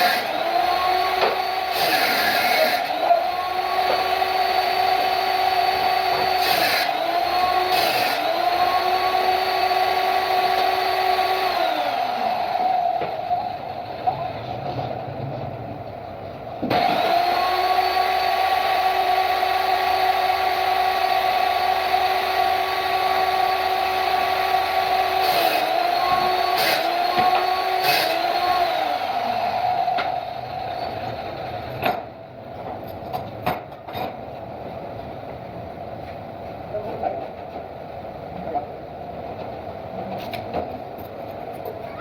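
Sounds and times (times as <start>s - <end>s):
power tool motor whining: 0.0s - 13.8s, 16.6s - 31.8s.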